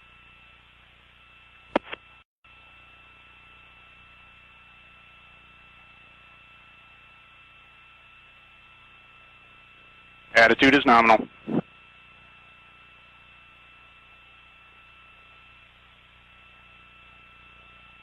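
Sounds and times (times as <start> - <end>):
radio hiss: 1.7 - 2.0, 10.3 - 11.8.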